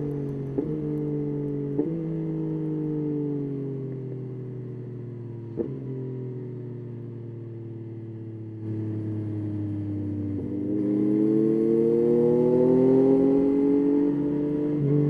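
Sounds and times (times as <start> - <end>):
motorcycle engine accelerating: 0.0 - 7.8, 8.5 - 15.0.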